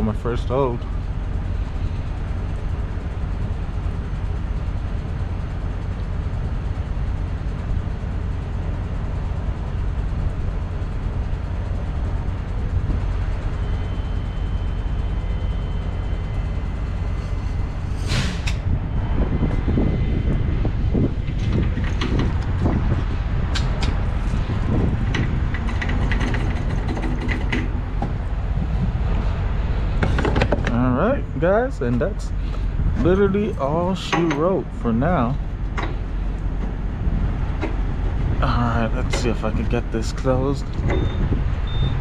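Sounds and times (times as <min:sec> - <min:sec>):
diesel engine idling: 0:00.0 - 0:42.0
clatter: 0:25.0 - 0:27.8.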